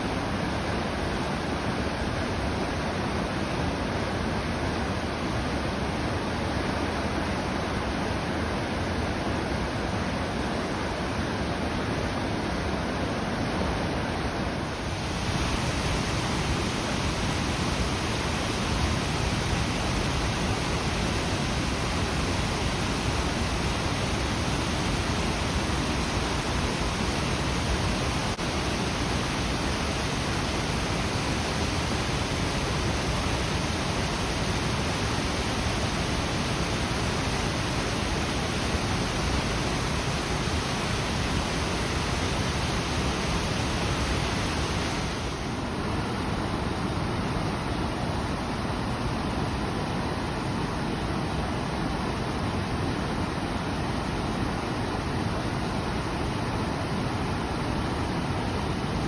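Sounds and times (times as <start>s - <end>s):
waterfall rushing: 14.7s - 45.8s.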